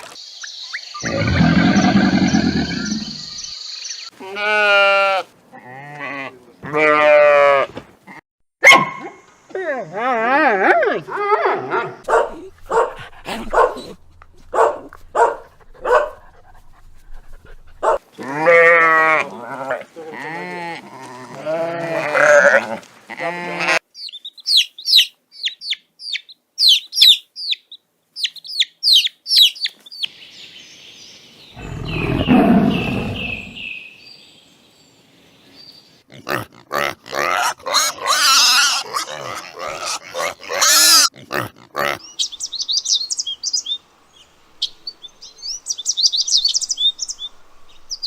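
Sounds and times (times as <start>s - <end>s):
low rough animal call: 1.0s - 3.4s, 31.6s - 33.6s
pitched wavering animal calls: 1.0s - 3.4s.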